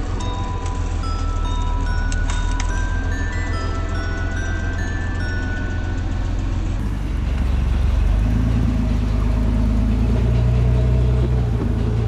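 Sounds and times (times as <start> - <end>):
truck engine running: 6.8 - 12.0.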